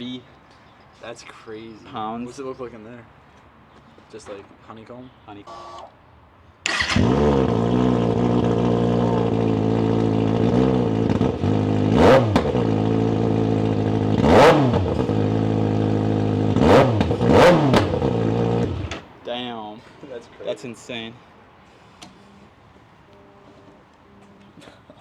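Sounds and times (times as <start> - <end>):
engine revving: 6.7 - 19.0
motorcycle engine idling: 6.7 - 19.0.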